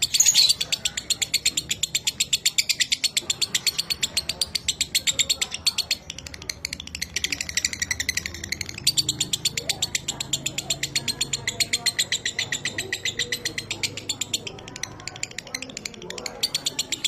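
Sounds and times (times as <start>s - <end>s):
lovebird chatter trill: 0.0s - 17.0s.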